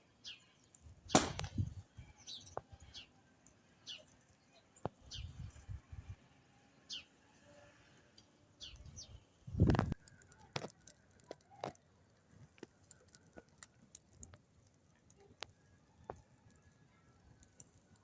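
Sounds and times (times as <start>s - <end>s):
small birds chirping: 0.1s - 6.0s, 6.6s - 9.4s.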